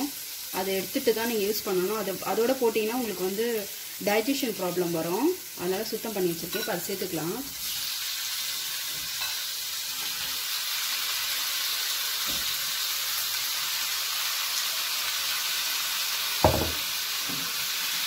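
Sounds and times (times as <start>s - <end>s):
prawns sizzling in hot oil: 0.0s - 18.0s
sharp knock: 16.4s - 16.8s.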